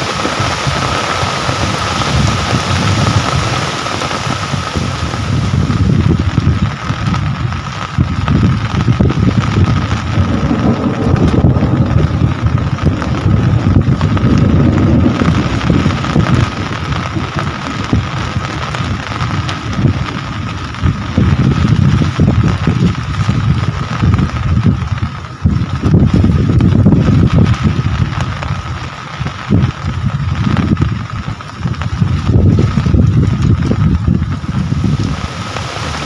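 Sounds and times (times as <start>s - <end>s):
heavy rain pouring: 0.0s - 36.0s
loud low rumble: 4.8s - 28.5s.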